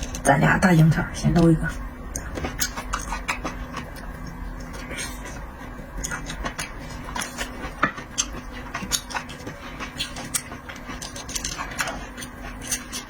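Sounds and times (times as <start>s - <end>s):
low steady hum: 0.0s - 13.0s
chewing and smacking: 2.1s - 13.0s.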